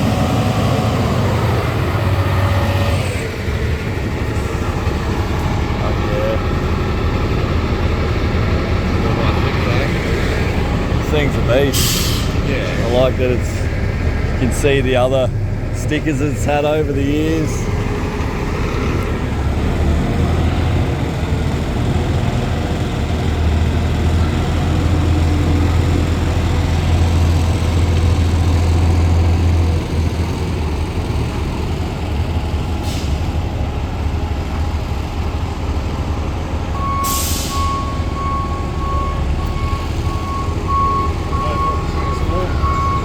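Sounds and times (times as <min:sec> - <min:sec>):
heavy truck engine drone: 0:00.0 - 0:43.0
air brake hiss: 0:11.7 - 0:12.4, 0:32.8 - 0:33.2, 0:37.0 - 0:37.7
reversing beeper beeping: 0:36.7 - 0:43.0.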